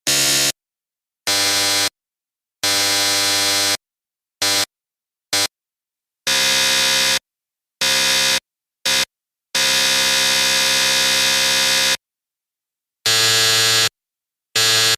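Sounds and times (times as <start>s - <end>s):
electric buzzer: 0.0s - 0.6s, 1.3s - 2.0s, 2.6s - 3.8s, 4.4s - 4.7s, 5.3s - 5.5s, 6.3s - 12.0s, 13.0s - 14.9s.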